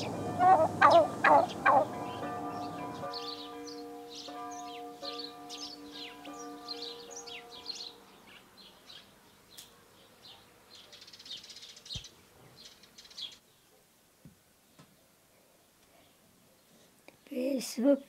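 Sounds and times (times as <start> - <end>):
birds chirping: 0.0 - 13.8.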